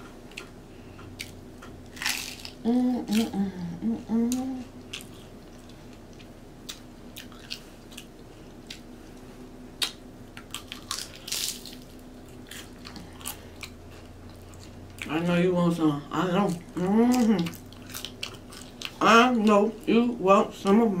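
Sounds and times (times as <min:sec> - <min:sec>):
person crunching chips: 0:01.2 - 0:03.4, 0:09.8 - 0:14.8, 0:17.1 - 0:19.1.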